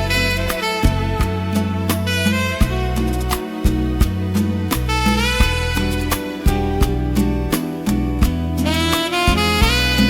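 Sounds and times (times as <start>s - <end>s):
smooth jazz with saxophone: 0.0s - 10.0s.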